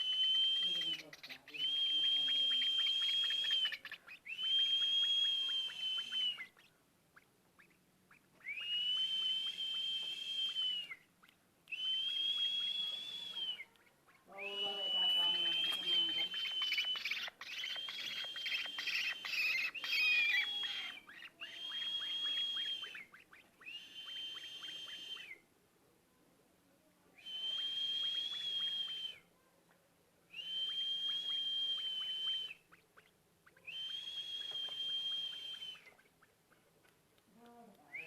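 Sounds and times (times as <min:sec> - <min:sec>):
birds calling: 0:00.0 - 0:25.1.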